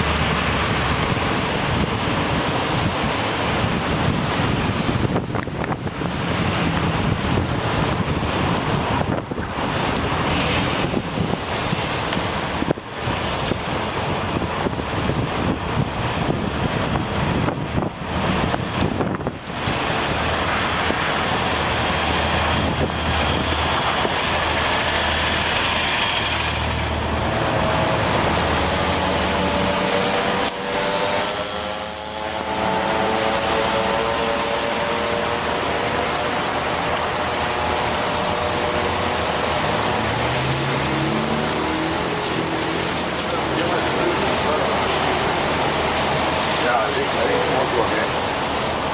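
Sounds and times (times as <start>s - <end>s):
traffic passing: 0.0s - 48.9s
wind and road hiss: 0.0s - 48.9s
vehicle drawn-out tone: 8.1s - 9.0s, 21.3s - 45.5s
engine revving: 21.7s - 48.2s.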